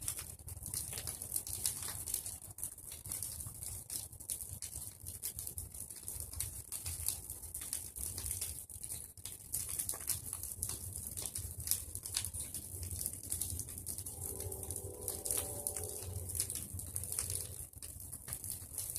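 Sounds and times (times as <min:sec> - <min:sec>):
bonfire crackling and popping: 0:00.0 - 0:18.9
low rumble: 0:13.8 - 0:17.7.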